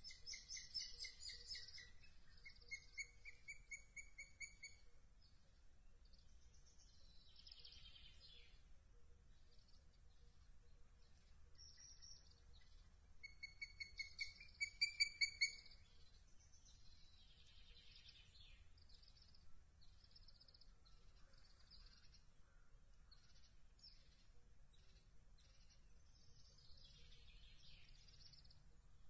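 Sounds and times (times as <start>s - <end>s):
faint small bird chirps: 0.0s - 5.4s, 6.0s - 8.6s, 9.3s - 28.7s.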